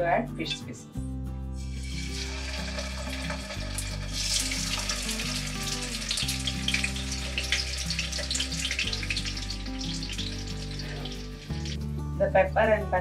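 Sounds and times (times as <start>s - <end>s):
background music: 0.0s - 13.0s
fish sizzling in hot oil: 1.6s - 11.8s.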